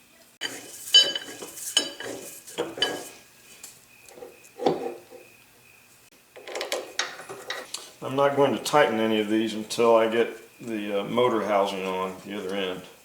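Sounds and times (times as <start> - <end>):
metal machine parts clanking: 0.4 - 3.1.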